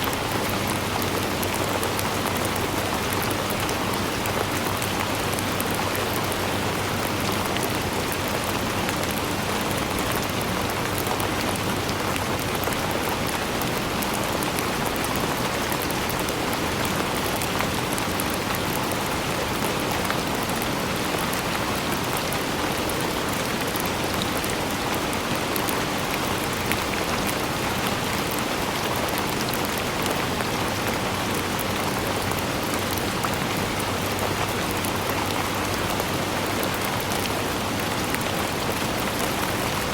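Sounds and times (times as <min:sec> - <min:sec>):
raindrops pattering on surfaces: 0:00.0 - 0:39.9
steady rain falling: 0:00.0 - 0:39.9.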